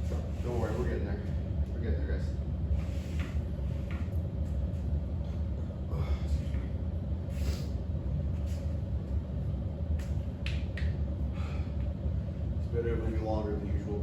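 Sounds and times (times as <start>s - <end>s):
low background rumble: 0.0s - 14.0s
person breathing heavily: 5.8s - 6.6s, 7.3s - 7.8s, 11.2s - 11.9s.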